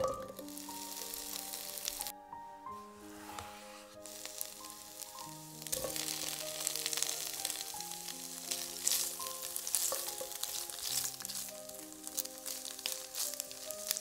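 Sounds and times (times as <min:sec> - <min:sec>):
soft background music: 0:00.0 - 0:14.0
tofu sizzling in oil: 0:00.1 - 0:02.1, 0:04.0 - 0:14.0
wooden spoon stirring: 0:03.1 - 0:14.0.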